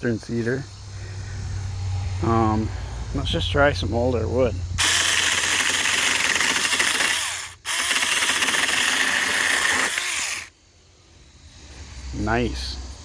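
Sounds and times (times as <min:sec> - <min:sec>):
electric chainsaw cutting wood: 0:04.8 - 0:10.5.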